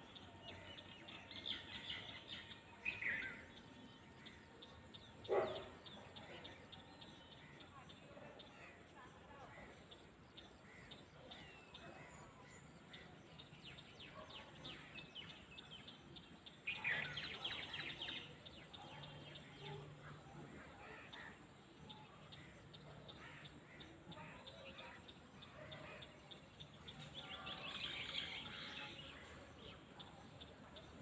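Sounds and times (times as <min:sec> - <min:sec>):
birds chirping: 0:00.0 - 0:07.7.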